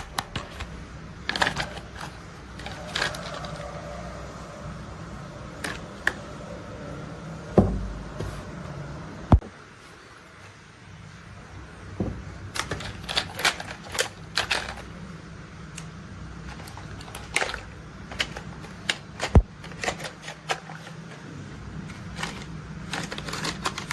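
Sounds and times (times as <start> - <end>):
plastic toy clicks and scrapes: 0.0 - 4.0, 12.5 - 14.9, 16.4 - 21.1, 21.9 - 23.9.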